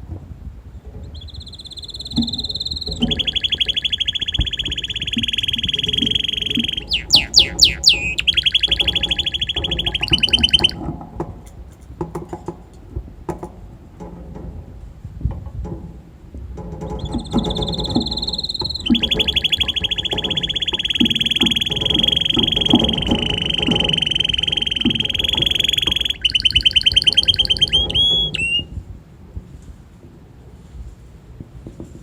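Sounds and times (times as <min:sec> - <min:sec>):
canary singing trills: 0:01.0 - 0:10.8, 0:16.8 - 0:28.7
bird chips and clicks: 0:01.1 - 0:10.8, 0:16.9 - 0:28.7.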